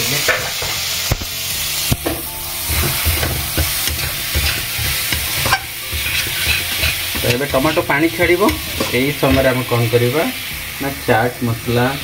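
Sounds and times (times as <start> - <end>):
masala sizzling in hot oil: 0.0 - 12.0
spatula scraping a pan: 2.6 - 10.1.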